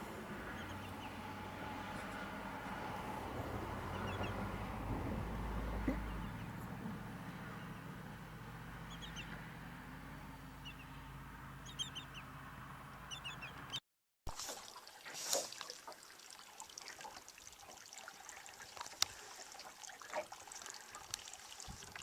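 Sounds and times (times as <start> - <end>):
bird calls: 0.0 - 4.7, 5.6 - 13.8
low background rumble: 0.0 - 13.8.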